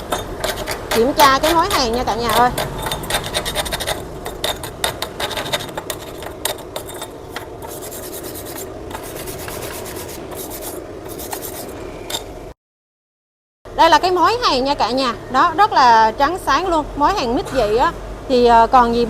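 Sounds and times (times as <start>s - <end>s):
scraping steel weld: 0.0s - 12.3s.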